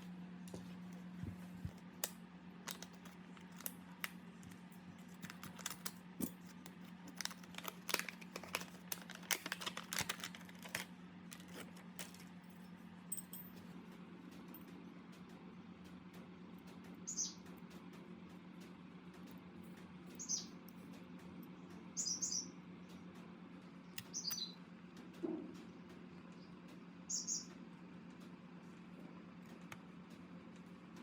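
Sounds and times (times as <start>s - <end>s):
steady low hum: 0.0s - 31.0s
small hard parts clicking: 2.0s - 12.4s.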